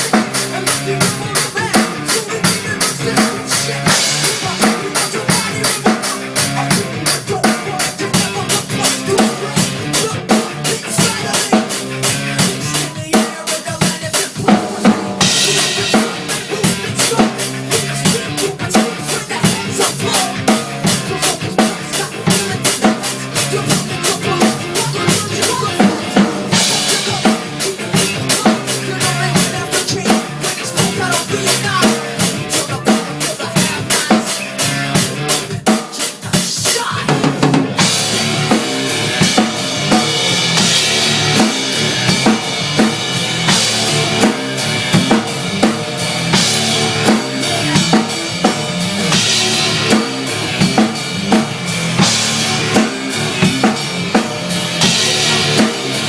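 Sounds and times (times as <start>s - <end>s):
kick and snare drums: 0.0s - 56.0s
heavy cymbal wash: 37.8s - 56.0s.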